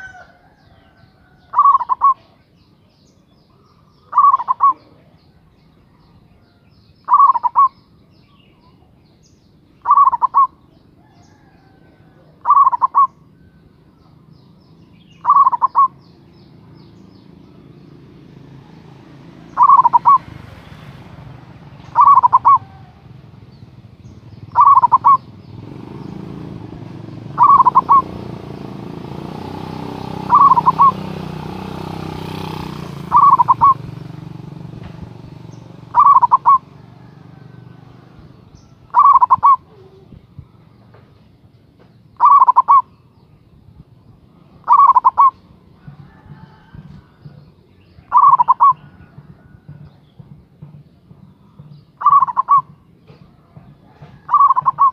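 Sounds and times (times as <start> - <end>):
dove cooing: 0.0 - 2.4, 3.8 - 5.2, 7.0 - 7.8, 9.8 - 13.4, 15.2 - 16.0, 18.6 - 20.4, 21.8 - 28.5, 30.1 - 31.4, 32.2 - 34.1, 35.6 - 40.2, 42.2 - 42.9, 44.4 - 47.4, 48.0 - 49.7, 52.0 - 54.9.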